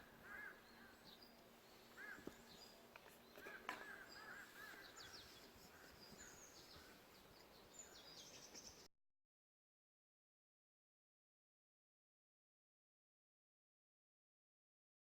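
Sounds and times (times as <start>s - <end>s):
low background hiss: 0.0s - 8.9s
small birds chirping: 0.0s - 8.9s.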